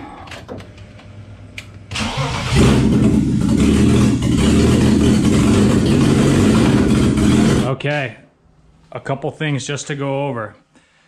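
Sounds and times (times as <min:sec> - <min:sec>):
car engine running: 0:02.5 - 0:07.7.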